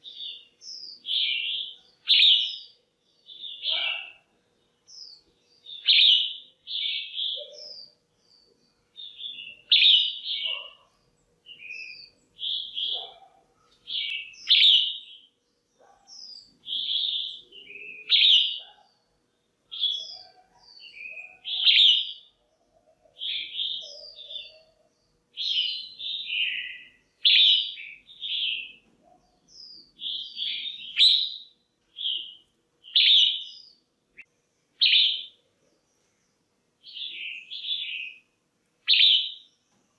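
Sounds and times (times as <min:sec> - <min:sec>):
bulbul chirpy calls: 0:00.0 - 0:04.3, 0:09.0 - 0:19.1, 0:19.7 - 0:35.4, 0:38.9 - 0:39.5.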